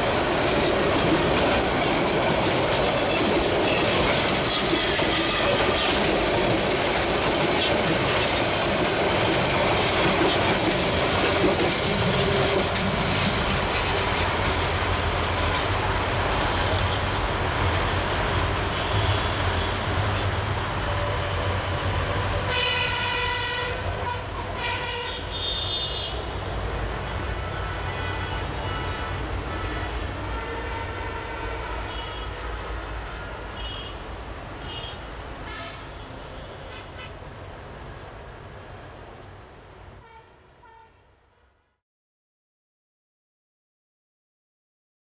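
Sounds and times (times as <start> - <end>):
train wheels clattering over joints: 0.0 - 18.1
diesel train rumble: 0.0 - 40.2
train horn blasts: 22.4 - 26.2, 27.2 - 33.9, 34.7 - 36.9, 40.0 - 41.1.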